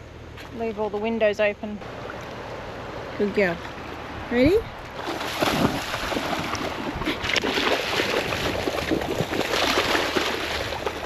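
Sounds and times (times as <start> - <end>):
water splashing from dog swimming: 4.9 - 11.0.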